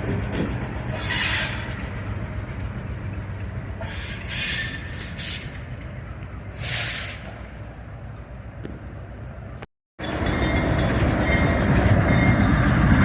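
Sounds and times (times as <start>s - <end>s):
diesel locomotive rumbling: 0.0s - 13.0s
short bursts of hiss: 6.6s - 7.3s.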